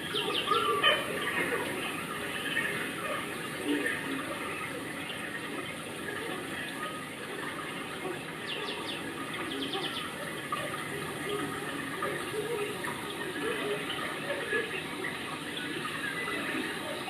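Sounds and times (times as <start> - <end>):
murmur of voices: 0.0 - 17.0
running water rushing: 0.0 - 17.0.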